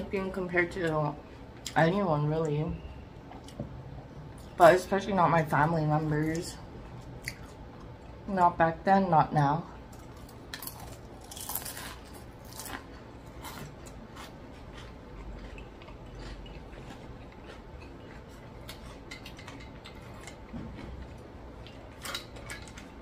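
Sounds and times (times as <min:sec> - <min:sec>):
chewing crispy food: 0:06.2 - 0:08.2, 0:09.8 - 0:23.0.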